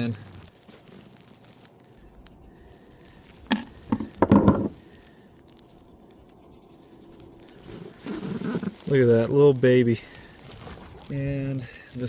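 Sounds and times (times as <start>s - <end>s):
sharp crack: 0.0s - 6.4s
knocking and rustling: 3.5s - 4.8s.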